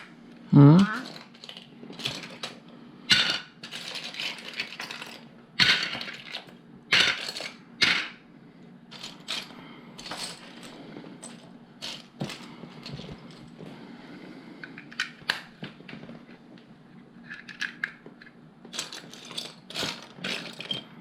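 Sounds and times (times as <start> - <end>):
plastic pieces clattering: 0.9 - 8.2, 8.9 - 13.5, 18.7 - 20.9.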